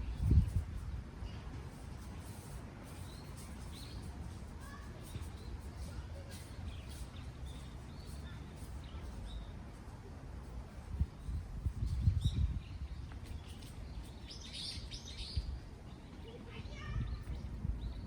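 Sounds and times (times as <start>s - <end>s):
wind buffeting microphone: 0.0s - 1.6s, 10.8s - 14.0s, 14.8s - 18.0s
small birds chirping: 0.0s - 9.9s, 10.5s - 18.0s.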